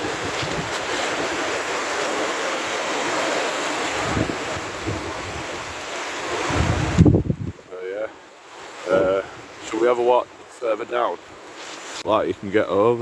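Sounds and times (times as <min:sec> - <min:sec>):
wind buffeting microphone: 0:00.0 - 0:02.3, 0:03.8 - 0:07.8, 0:08.8 - 0:09.7
flooded river rushing: 0:00.0 - 0:13.0.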